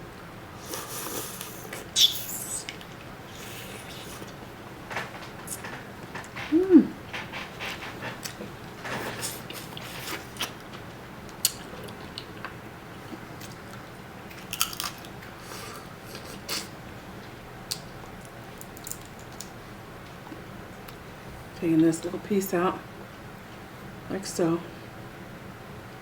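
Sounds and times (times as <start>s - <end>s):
crab being chewed: 0.6s - 4.4s, 5.4s - 16.8s.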